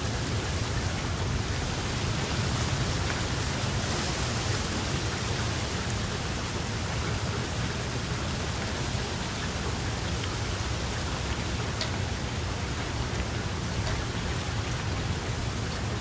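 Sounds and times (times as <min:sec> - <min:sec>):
steady rain hiss: 0:00.0 - 0:16.0
raindrop taps: 0:07.8 - 0:16.0.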